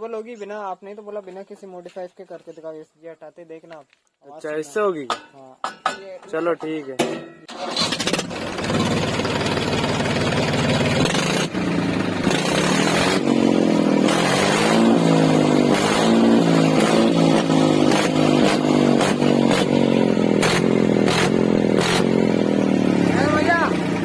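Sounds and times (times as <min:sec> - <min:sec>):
exhaust cracks: 0:07.5 - 0:24.0
tractor engine revving: 0:07.5 - 0:24.0.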